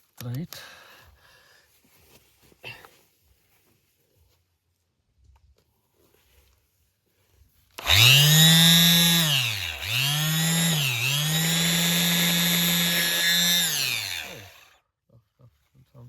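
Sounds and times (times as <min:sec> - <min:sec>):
orbital sander whining: 0:07.8 - 0:14.8.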